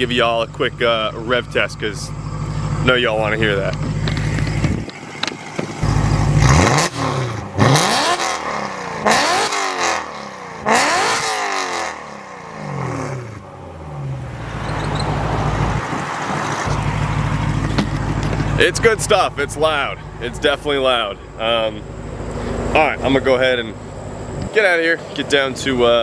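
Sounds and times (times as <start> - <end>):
car engine revving: 0.0 - 26.0
engine idling: 0.0 - 26.0.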